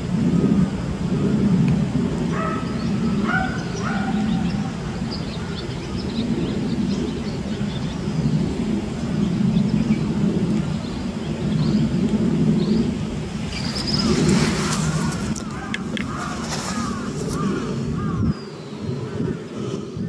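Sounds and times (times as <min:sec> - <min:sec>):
low background rumble: 0:00.0 - 0:20.0
bird high-pitched calls: 0:02.3 - 0:08.3, 0:13.5 - 0:19.2
crow cawing: 0:14.6 - 0:18.3.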